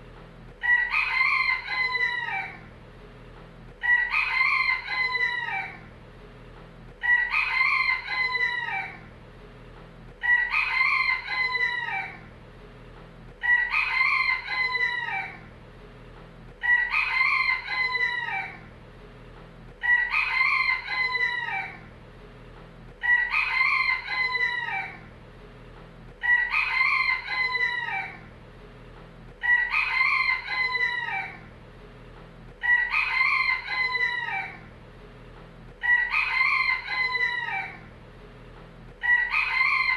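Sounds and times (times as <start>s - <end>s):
rooster crowing: 0.6s - 2.7s, 3.8s - 5.9s, 7.0s - 9.1s, 10.2s - 12.3s, 13.4s - 15.5s, 16.6s - 18.7s, 19.8s - 21.9s, 23.0s - 25.1s, 26.2s - 28.3s, 29.4s - 31.5s, 32.6s - 34.7s, 35.8s - 37.9s, 39.0s - 39.9s.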